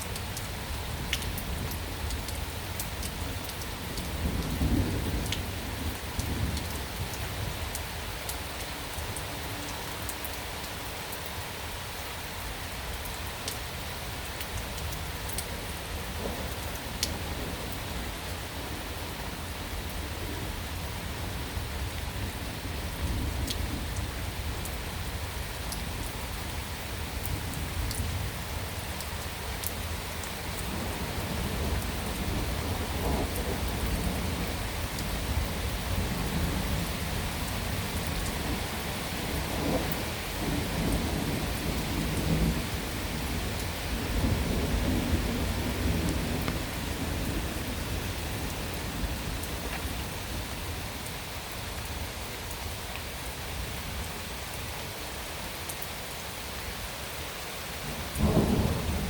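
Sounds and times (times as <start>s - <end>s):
steady rain falling: 0.0s - 59.0s
rolling thunder: 3.8s - 7.6s, 16.0s - 24.7s, 30.2s - 50.5s, 57.9s - 59.0s.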